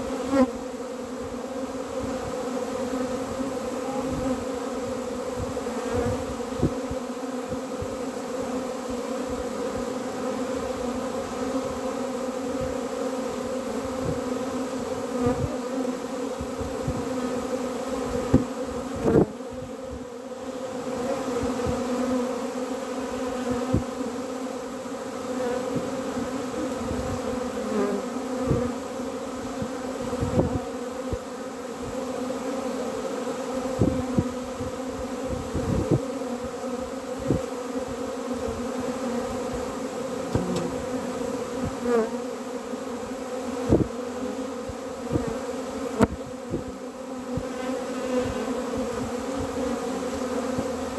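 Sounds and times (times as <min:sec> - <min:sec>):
honeybees buzzing: 0:00.0 - 0:50.9.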